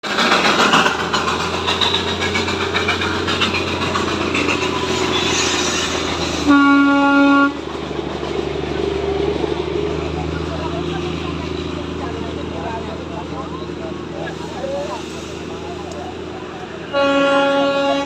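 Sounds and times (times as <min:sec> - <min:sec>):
train clattering: 0:00.0 - 0:18.0
train horn blast: 0:06.4 - 0:07.6, 0:16.9 - 0:18.0.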